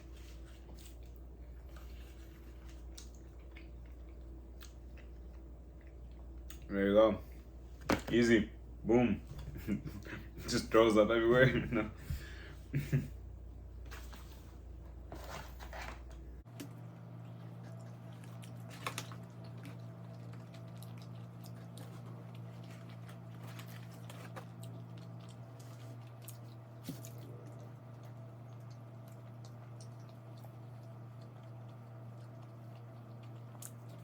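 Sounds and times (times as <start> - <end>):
steady low hum: 0.0 - 34.0
person chewing and biting: 16.6 - 34.0.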